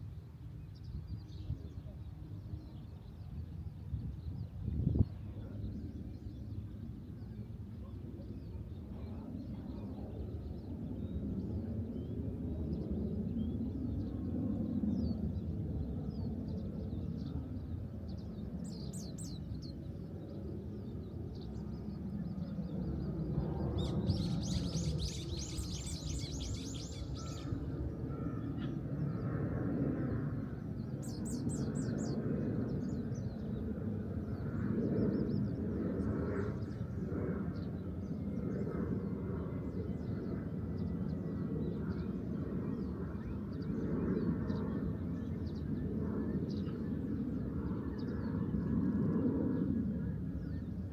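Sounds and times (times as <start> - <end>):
small birds chirping: 22.8 - 27.8.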